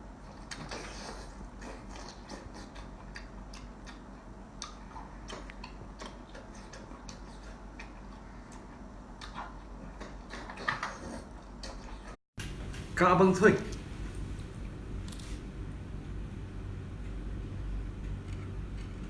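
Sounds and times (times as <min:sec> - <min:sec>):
chewing and crunching: 0:00.3 - 0:12.1, 0:17.0 - 0:19.0
low steady hum: 0:12.4 - 0:19.0.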